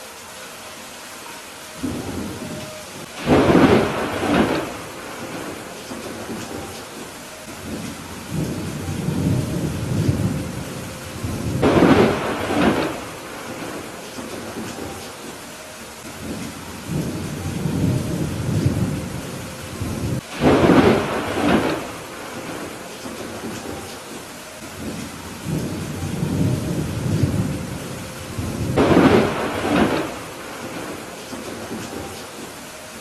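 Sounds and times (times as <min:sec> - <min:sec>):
steady rain: 0:00.0 - 0:33.0
thunder cracks: 0:01.8 - 0:15.0, 0:16.2 - 0:24.2, 0:24.8 - 0:32.6
thunder rumbling: 0:01.8 - 0:33.0.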